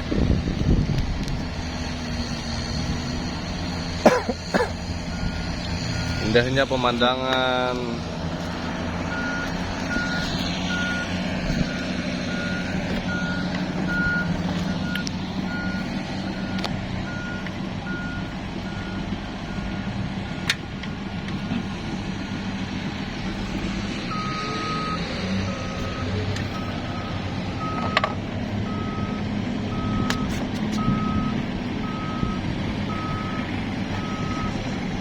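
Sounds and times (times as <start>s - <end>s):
engine humming: 0.0s - 35.0s
reversing alarm beeping: 5.1s - 7.1s, 9.0s - 20.5s, 24.1s - 34.6s.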